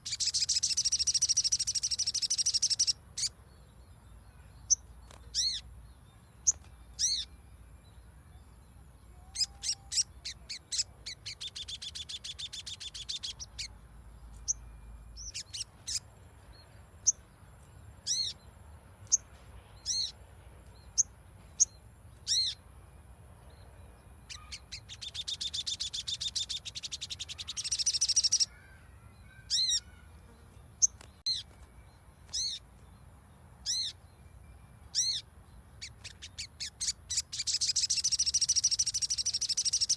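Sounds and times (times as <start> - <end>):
bird chattering trill: 0.0 - 3.3, 9.2 - 13.7, 24.3 - 28.6, 29.3 - 30.0, 35.8 - 39.9
bird chipping: 0.0 - 3.3, 9.2 - 14.6, 15.2 - 16.1, 24.2 - 30.1, 34.9 - 39.9.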